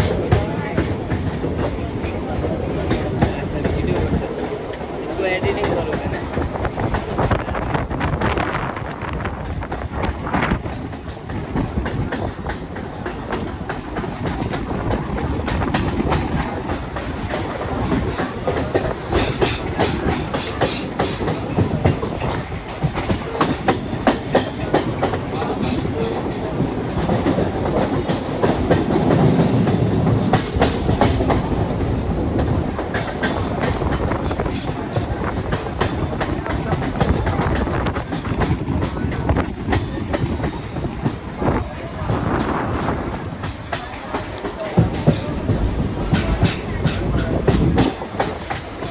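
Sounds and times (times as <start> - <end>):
train wheels clacking on rails: 0.0 - 48.9.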